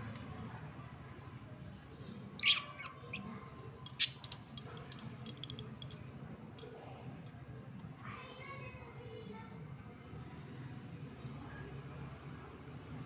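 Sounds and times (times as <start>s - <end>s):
budgerigars chirping: 2.4s - 3.2s.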